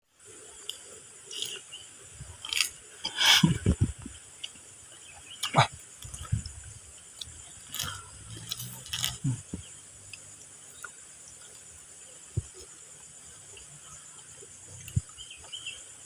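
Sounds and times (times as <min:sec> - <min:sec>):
crunchy snack being chewed: 0:00.6 - 0:01.6, 0:02.4 - 0:02.8, 0:07.2 - 0:09.4.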